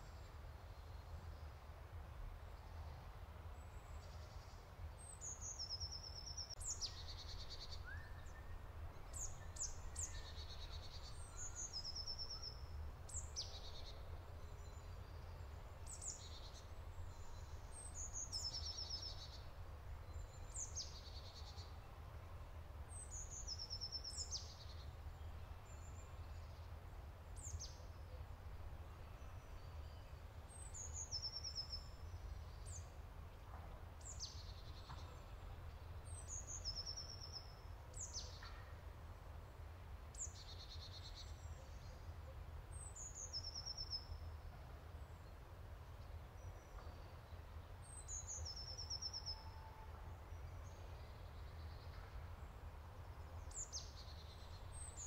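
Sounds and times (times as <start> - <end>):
songbird singing with trills: 5.0 - 22.0, 22.9 - 26.7, 29.1 - 33.0, 34.0 - 38.6, 42.7 - 44.3, 46.4 - 52.2.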